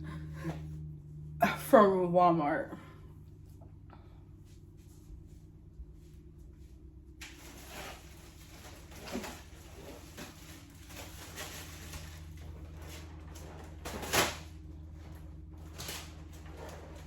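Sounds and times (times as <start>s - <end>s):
low steady hum: 0.0s - 17.0s
shopping bags rustling: 7.0s - 17.0s.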